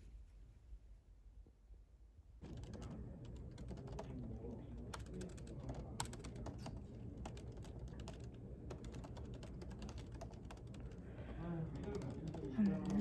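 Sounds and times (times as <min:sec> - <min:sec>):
computer keyboard typing: 0:02.4 - 0:13.0.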